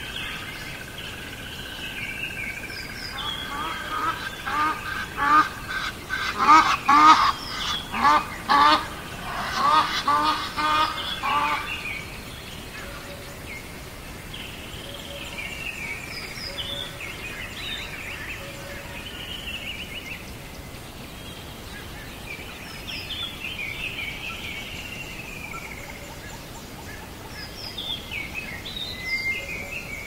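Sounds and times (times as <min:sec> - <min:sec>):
small birds chirping: 0:00.0 - 0:30.0
goose-like bird calling: 0:03.1 - 0:11.8.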